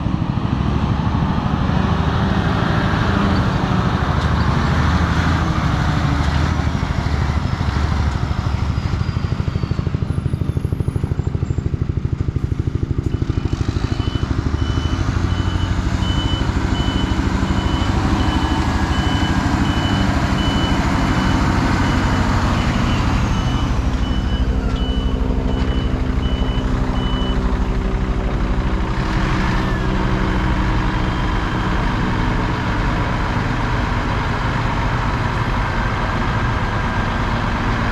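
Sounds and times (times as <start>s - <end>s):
diesel truck engine running: 0.0s - 37.9s
reversing alarm beeping: 13.0s - 27.8s, 29.6s - 32.3s.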